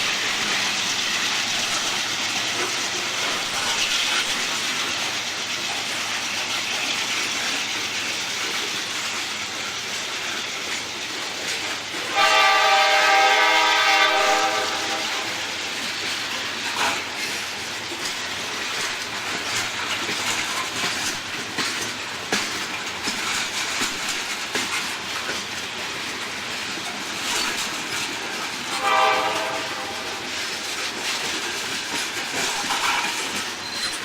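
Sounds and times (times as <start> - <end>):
train wheels clicking over rail joints: 0.0 - 34.0
train horn blast: 12.0 - 15.6, 28.7 - 30.3.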